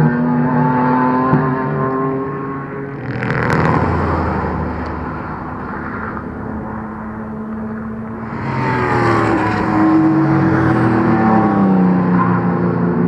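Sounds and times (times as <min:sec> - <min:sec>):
race car engine: 0:00.0 - 0:13.0.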